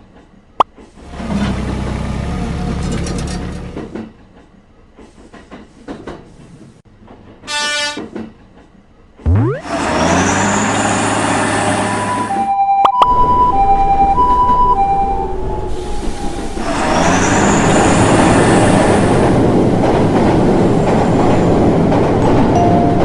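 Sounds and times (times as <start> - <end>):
two-pitch alternating tone: 9.3 - 9.7
train rushing past: 15.5 - 23.0.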